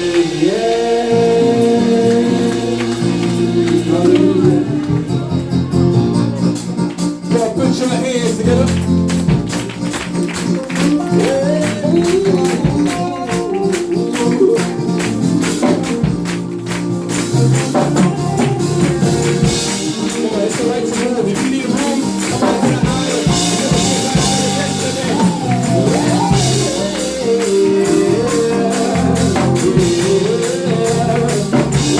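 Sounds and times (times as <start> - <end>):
bass: 0.0 - 31.9
gospel worship music: 0.0 - 31.9
keyboard: 0.0 - 31.9
tambourine shaking: 6.4 - 31.9.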